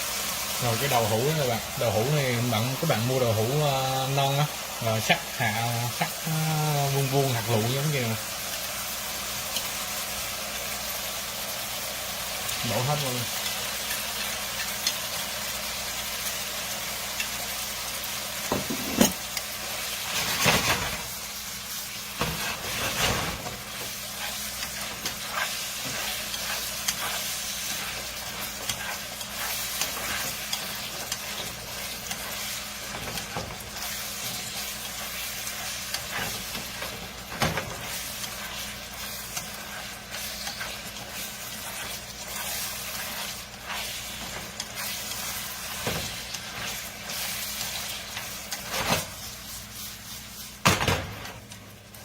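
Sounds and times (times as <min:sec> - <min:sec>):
tofu sizzling in a pan: 0:00.0 - 0:52.0
utensil scraping a pan: 0:22.2 - 0:50.6.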